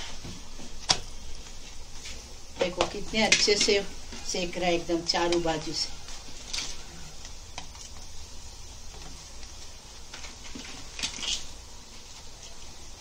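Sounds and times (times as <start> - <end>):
paratha sizzling in a pan: 0.0 - 13.0.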